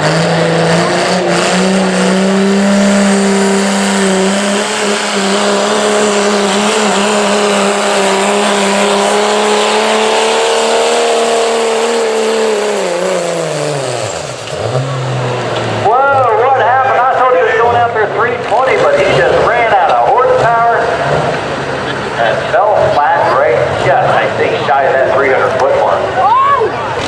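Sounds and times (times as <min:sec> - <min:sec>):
diesel pickup engine at high revs: 0:00.0 - 0:27.0.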